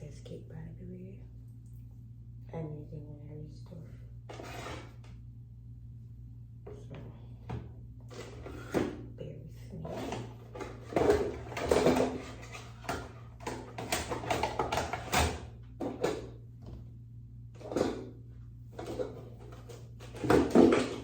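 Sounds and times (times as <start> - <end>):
faint low hum: 0.0 - 21.0
makeup containers clicking and rustling: 10.6 - 16.2.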